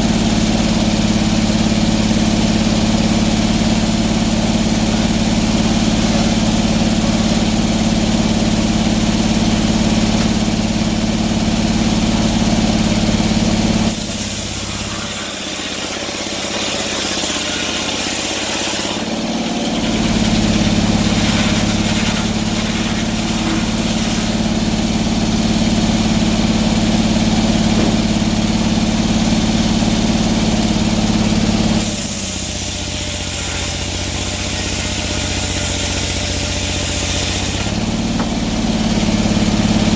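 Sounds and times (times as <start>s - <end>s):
engine humming: 0.0s - 39.9s.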